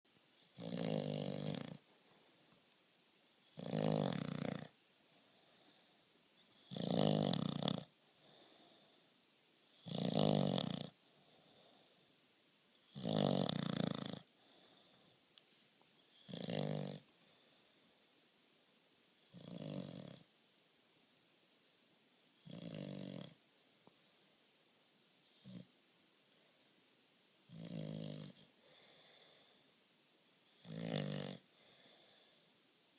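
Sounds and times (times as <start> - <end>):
dog snoring loudly: 0.5 - 1.8, 3.5 - 4.8, 6.5 - 7.9, 9.7 - 11.0, 12.8 - 14.3, 16.1 - 17.0, 19.3 - 20.3, 22.4 - 23.4, 25.3 - 25.7, 27.5 - 28.5, 30.6 - 32.0
faint dog breaths: 12.8 - 18.2, 27.5 - 29.9, 31.4 - 32.6.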